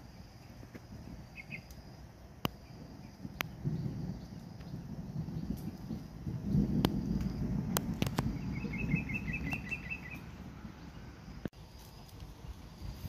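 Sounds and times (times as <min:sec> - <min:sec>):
low uneven rumble: 0:00.0 - 0:13.0
small bird chirping: 0:00.1 - 0:01.8, 0:08.0 - 0:11.3.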